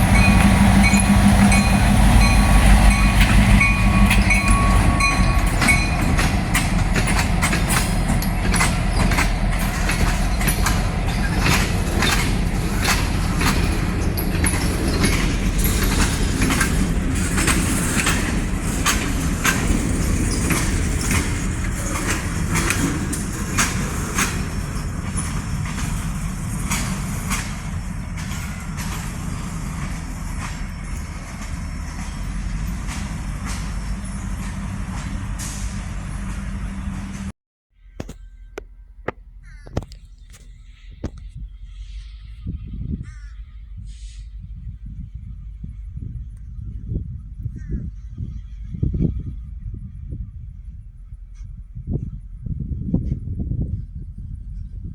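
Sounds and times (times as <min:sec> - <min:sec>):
wheels clicking over rail joints: 0:00.0 - 0:37.3
locomotive engine rumble: 0:00.0 - 0:54.9.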